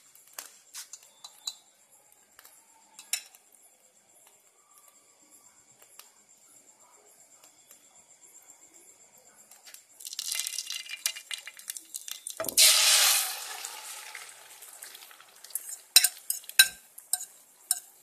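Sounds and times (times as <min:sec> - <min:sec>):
hot oil crackling in a pan: 0:09.5 - 0:18.0
loud sizzle of egg in oil: 0:10.0 - 0:18.0.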